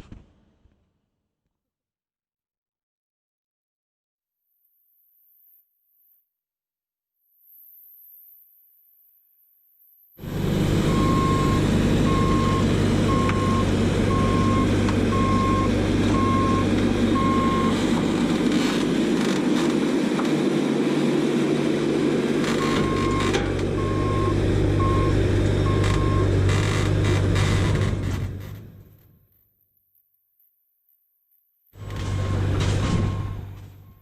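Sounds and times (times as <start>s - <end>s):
farm machine engine running: 10.2s - 29.1s, 31.8s - 34.0s
backup alarm beeping: 10.7s - 17.8s, 22.6s - 26.3s, 31.8s - 34.0s.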